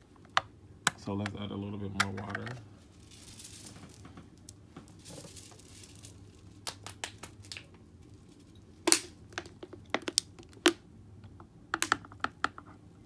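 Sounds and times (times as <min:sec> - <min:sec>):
plastic clicks and knocks: 0:08.9 - 0:12.8.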